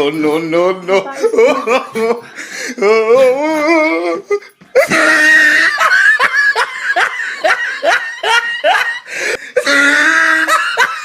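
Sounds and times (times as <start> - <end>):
person laughing hard: 1.0 - 11.0.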